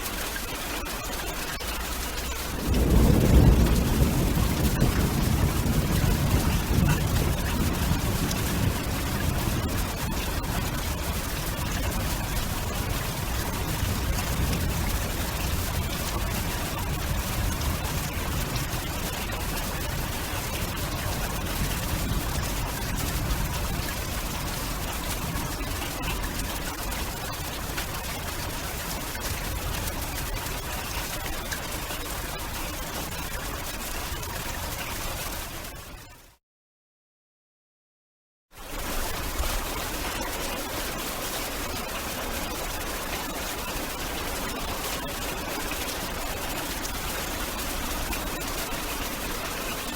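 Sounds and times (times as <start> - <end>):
wind and rain hiss: 0.0 - 35.7, 38.7 - 49.9
low fluctuating rumble: 1.8 - 34.9.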